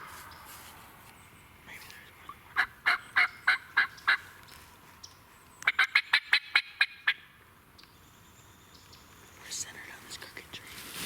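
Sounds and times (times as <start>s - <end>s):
wild turkey yelping: 2.5s - 4.2s.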